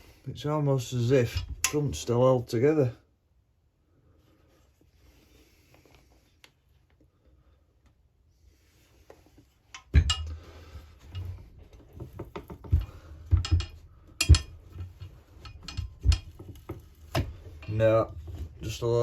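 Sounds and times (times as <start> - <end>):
metal knocks and clinks: 9.8 - 18.6.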